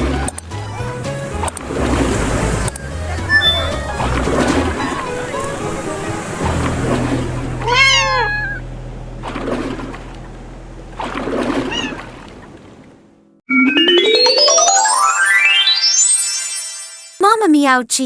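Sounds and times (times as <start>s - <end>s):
water splashes: 0.0s - 13.2s
cartoon cat meow: 7.6s - 8.6s
electronic sweep rising in pitch: 13.5s - 17.2s.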